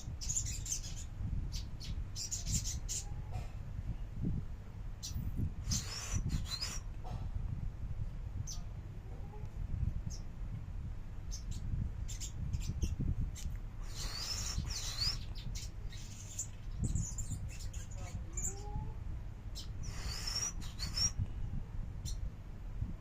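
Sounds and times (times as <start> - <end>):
songbird chirping and whistling: 0.0 - 3.1, 5.0 - 6.9, 13.8 - 18.8, 19.6 - 21.2
steady low rumble: 0.0 - 23.0.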